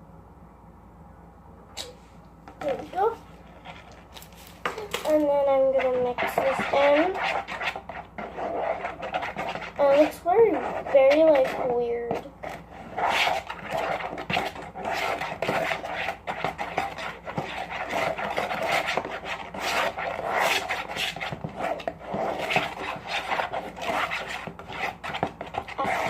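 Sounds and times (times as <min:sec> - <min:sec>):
utensil scraping bowl: 0:02.5 - 0:26.0.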